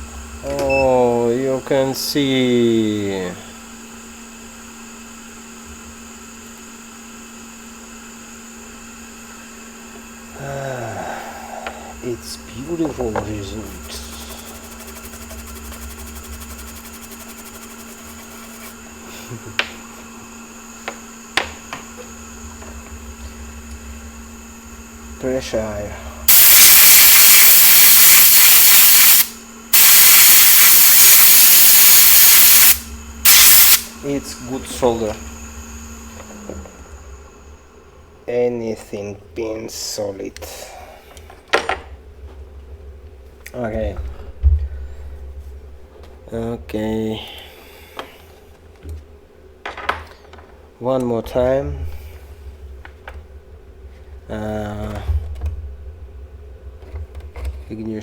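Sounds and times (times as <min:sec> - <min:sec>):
fan-like hiss: 0:00.0 - 0:41.6, 0:43.3 - 0:48.6, 0:50.8 - 0:53.0
electrical hum: 0:00.0 - 0:58.0
compressed air hissing blasts: 0:13.4 - 0:19.3, 0:26.2 - 0:34.2.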